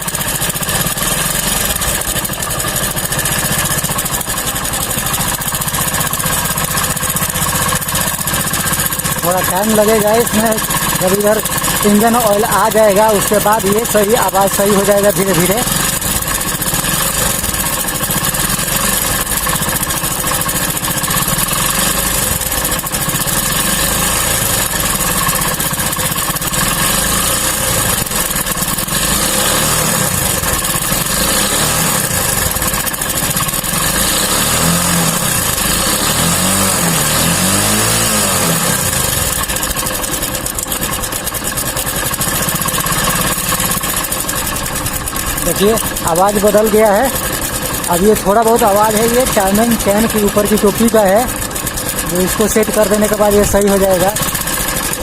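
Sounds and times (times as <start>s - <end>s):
fast mechanical ticking: 0.0s - 55.0s
motorcycle engine idling: 0.0s - 55.0s.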